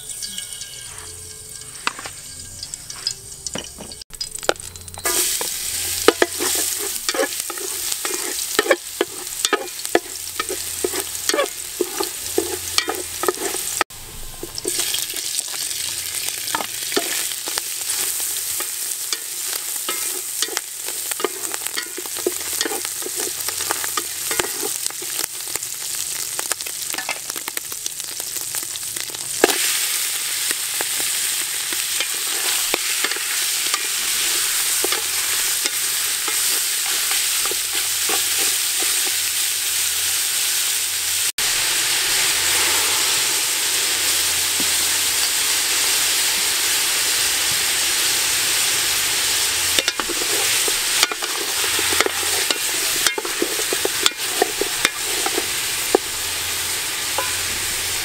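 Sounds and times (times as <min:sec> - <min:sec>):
oil sizzling in a pot: 0:00.0 - 0:58.0
wooden spatula scraping a pot: 0:05.0 - 0:13.8, 0:16.5 - 0:25.5, 0:32.0 - 0:39.2, 0:49.8 - 0:56.1.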